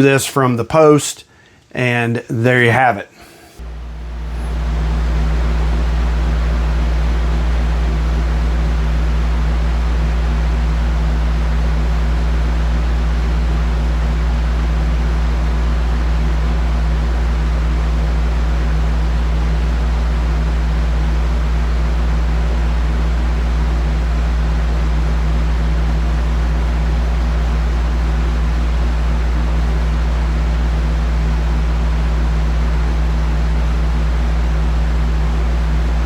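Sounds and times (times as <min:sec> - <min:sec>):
steady mechanical drone: 0:03.5 - 0:36.0.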